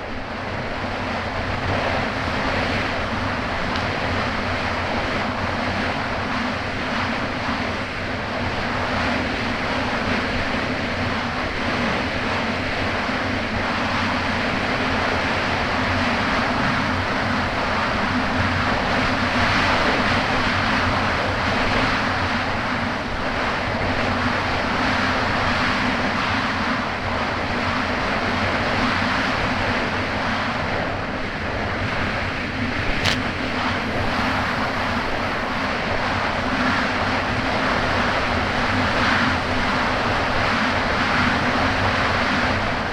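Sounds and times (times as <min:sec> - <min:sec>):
wind and water rushing: 0:00.0 - 0:42.9
jet ski engine running: 0:31.8 - 0:42.9
short click: 0:33.0 - 0:33.6.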